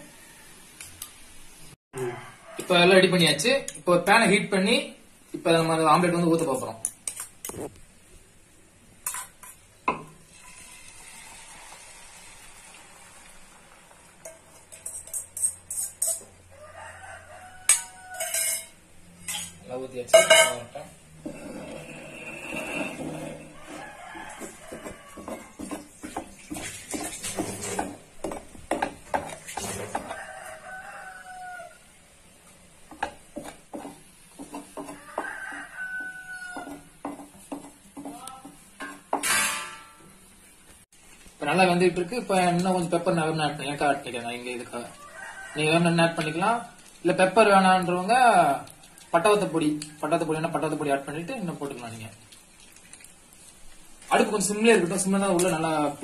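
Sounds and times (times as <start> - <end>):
rooster crowing: 0.0 - 0.7, 2.0 - 3.0, 16.5 - 18.6, 22.8 - 25.7, 29.9 - 32.0, 34.8 - 36.9, 44.9 - 46.0
batter sizzling on hot pan: 9.0 - 16.3, 40.8 - 56.0
metal spatula scraping on iron pan: 14.2 - 16.4, 17.5 - 30.7, 38.8 - 40.2.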